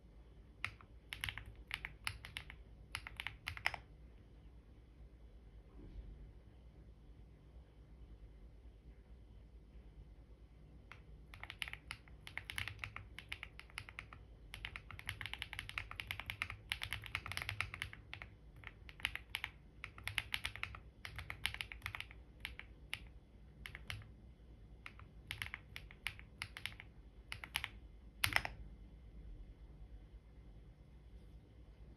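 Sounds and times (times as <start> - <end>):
computer keyboard typing: 0.6 - 3.9, 10.9 - 24.2, 24.8 - 28.6.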